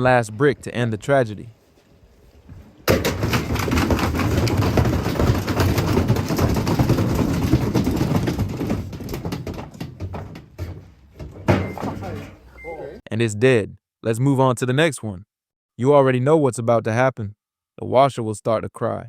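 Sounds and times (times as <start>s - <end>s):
brick banging in washing machine: 2.8s - 12.4s
washing machine drum spinning: 2.9s - 11.8s.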